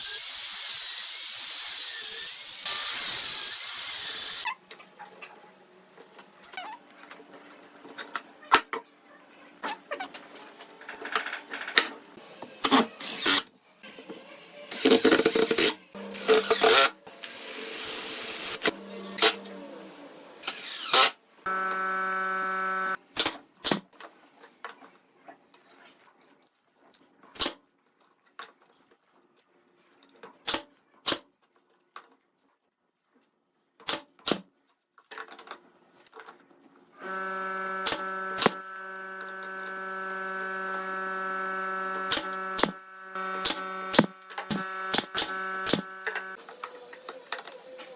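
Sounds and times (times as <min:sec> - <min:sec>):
power tool motor running: 0:20.6 - 0:23.0, 0:37.0 - 0:46.4.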